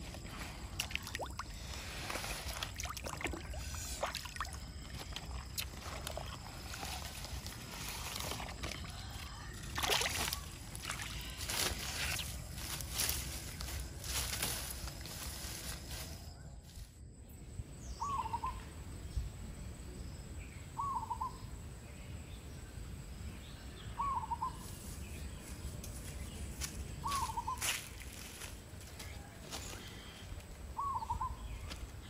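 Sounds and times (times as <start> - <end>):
outdoor background noise: 0.0 - 32.0
vegetation rustling: 5.0 - 17.0, 24.6 - 30.4
bird hooting call: 20.8 - 21.5, 24.0 - 24.6, 27.0 - 27.7, 30.8 - 31.5.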